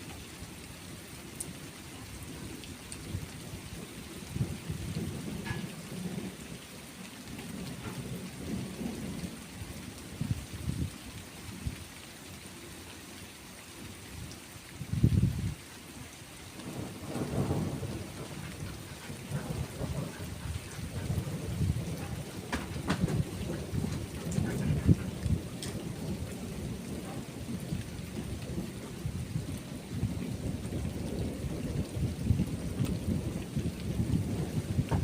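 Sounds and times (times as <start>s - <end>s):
steady rain: 0.0s - 35.0s
thunder rumbling: 16.6s - 35.0s.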